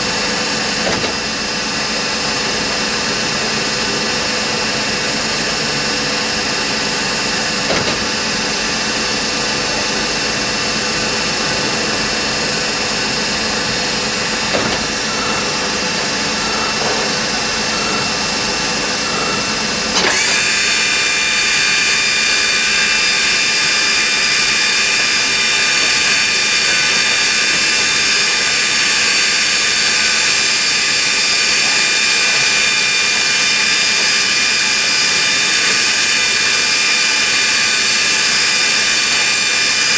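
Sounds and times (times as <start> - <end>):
lathe running with high whine: 0.0 - 39.9
machine clicks: 0.8 - 1.4, 7.6 - 8.3, 14.3 - 15.5.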